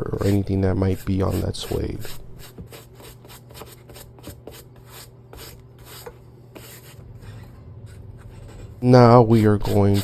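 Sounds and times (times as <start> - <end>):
eraser rubbing suede: 8.2 - 10.0.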